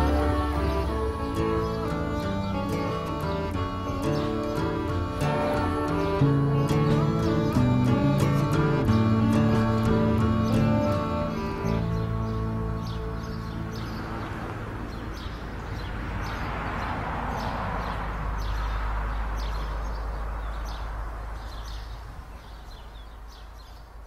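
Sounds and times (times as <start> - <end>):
held music notes: 0.0 - 14.9
birds chirping: 0.0 - 24.0.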